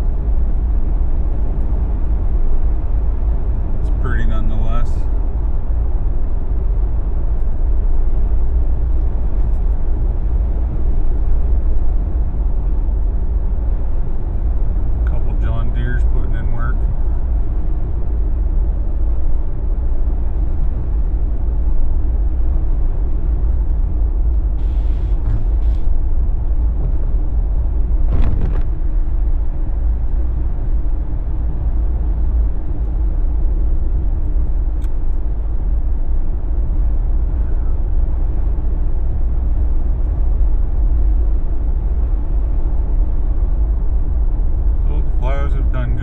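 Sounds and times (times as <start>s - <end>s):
road and engine rumble: 0.0s - 46.0s
brief hisses: 24.6s - 25.9s.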